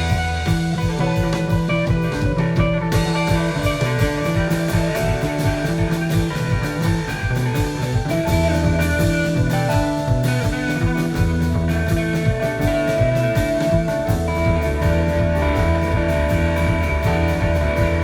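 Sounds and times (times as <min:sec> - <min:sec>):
drum kit beat: 0:00.0 - 0:18.0
electric guitar: 0:00.0 - 0:18.0.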